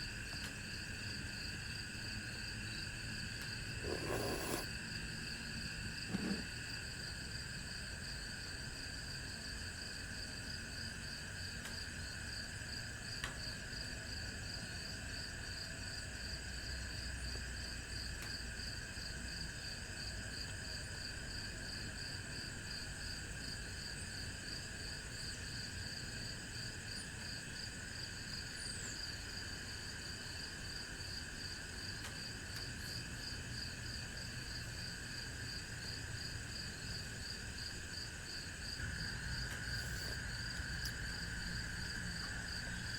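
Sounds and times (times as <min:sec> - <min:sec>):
insects chirping: 0:32.6 - 0:42.9.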